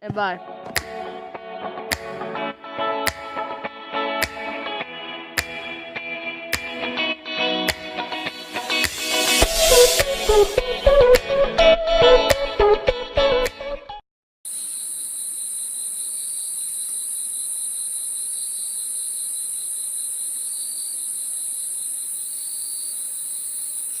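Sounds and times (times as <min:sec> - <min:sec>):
music: 0:00.1 - 0:14.0
high-pitched insect chorus: 0:08.2 - 0:10.6, 0:14.5 - 0:24.0.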